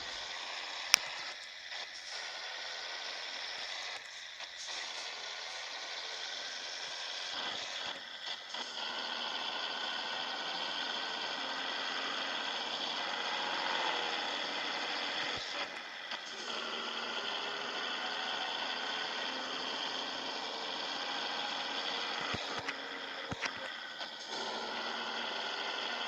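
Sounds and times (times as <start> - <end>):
truck diesel engine running: 16.4 - 26.0.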